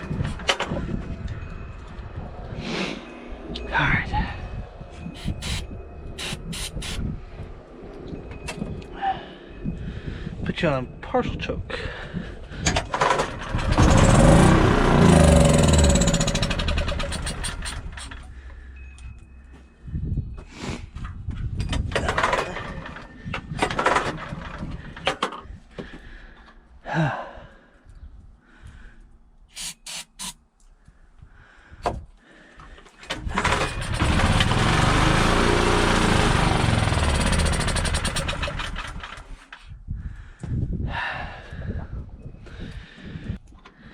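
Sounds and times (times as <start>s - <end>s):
small gasoline engine revving: 13.0s - 18.2s, 33.2s - 39.4s.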